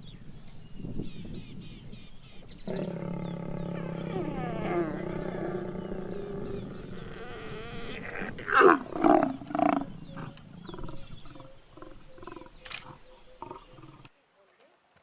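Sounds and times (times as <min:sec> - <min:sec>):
big cat grunting: 0:02.7 - 0:14.0
big cat roaring: 0:02.7 - 0:14.0
big cat growling: 0:02.7 - 0:14.1.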